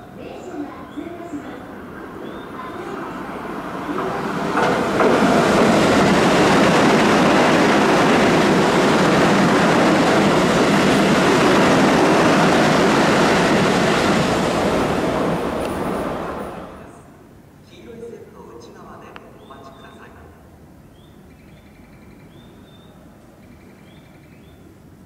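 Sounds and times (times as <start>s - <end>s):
train wheels rumbling on rail: 0.1s - 16.9s.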